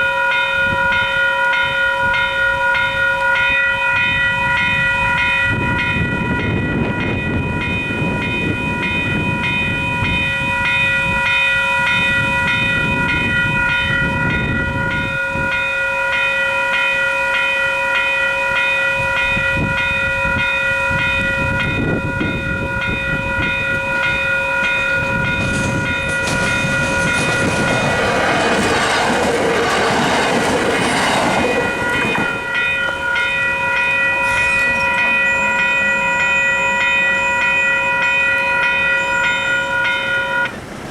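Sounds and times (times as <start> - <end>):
level crossing bells ringing: 0.0 - 40.8
electric train passing: 0.0 - 40.9
train wheels clacking over rails: 21.4 - 40.9.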